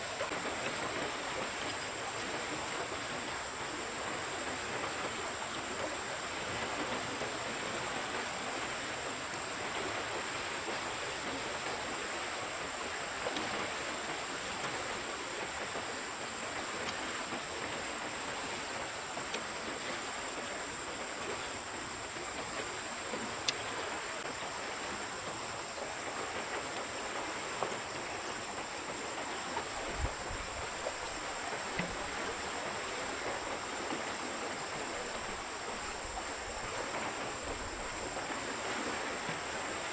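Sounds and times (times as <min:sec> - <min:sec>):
forest stream flowing: 0:00.0 - 0:39.9
faint ticks: 0:00.2 - 0:03.4, 0:09.2 - 0:11.9, 0:13.2 - 0:14.8, 0:15.4 - 0:24.6, 0:25.2 - 0:32.3.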